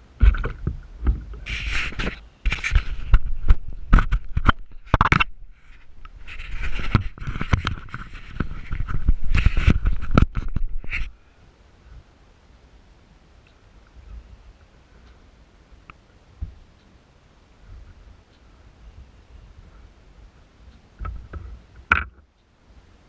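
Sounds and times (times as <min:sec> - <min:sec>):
scraping and knocking: 0:00.2 - 0:11.1.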